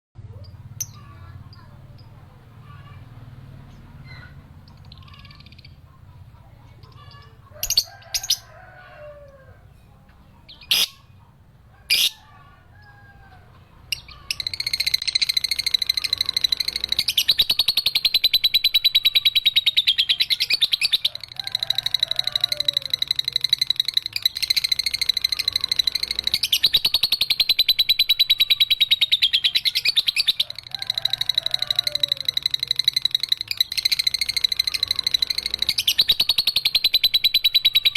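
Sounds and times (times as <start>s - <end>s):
lovebird rapid trilling chatter: 0.4s - 8.9s, 10.5s - 11.2s, 11.9s - 12.3s, 13.9s - 37.9s
bird sharp chirps: 13.9s - 37.9s.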